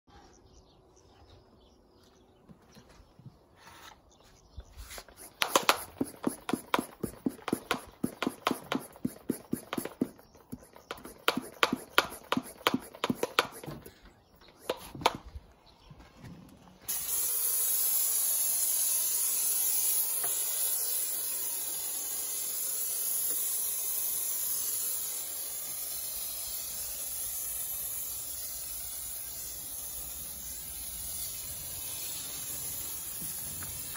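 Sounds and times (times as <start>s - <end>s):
foam spraying hiss: 5.0s - 15.2s, 16.9s - 33.9s
hand pump strokes: 5.0s - 15.2s.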